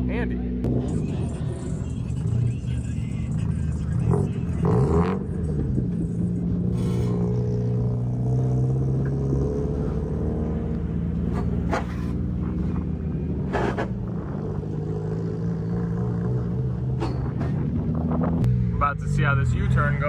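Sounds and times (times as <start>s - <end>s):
car engine revving: 0.4s - 20.0s.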